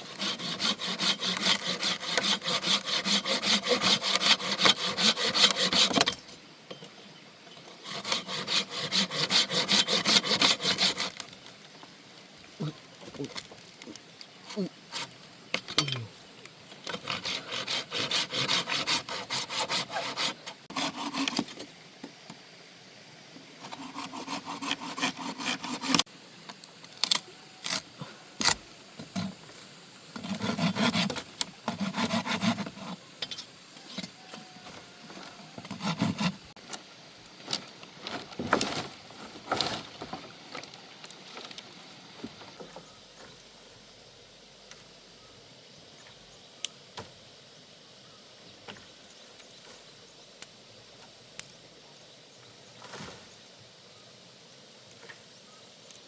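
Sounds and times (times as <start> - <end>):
saw cutting wood: 0.0 - 6.2, 7.6 - 11.2, 16.8 - 21.6, 23.6 - 26.1, 30.2 - 33.0, 35.6 - 36.5.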